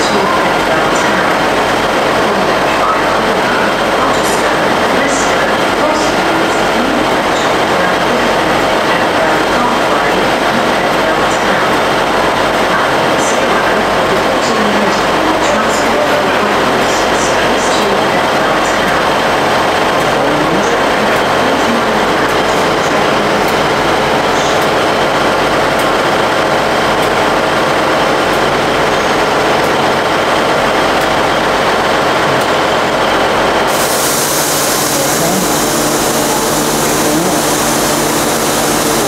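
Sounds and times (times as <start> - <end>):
train rumbling at platform: 0.0 - 39.0
hiss: 33.7 - 39.0.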